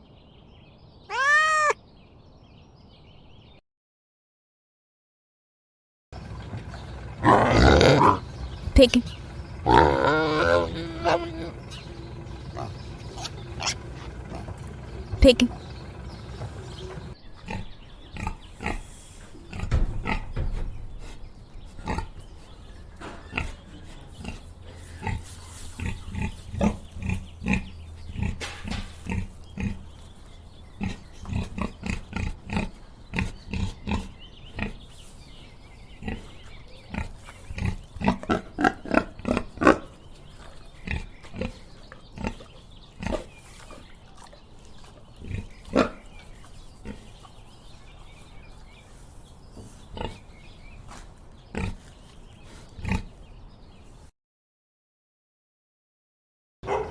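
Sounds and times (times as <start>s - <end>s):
pig grunting: 6.2s - 20.4s, 21.7s - 22.3s, 23.1s - 30.1s, 30.7s - 34.9s, 36.0s - 47.3s, 51.5s - 52.0s, 52.7s - 53.2s.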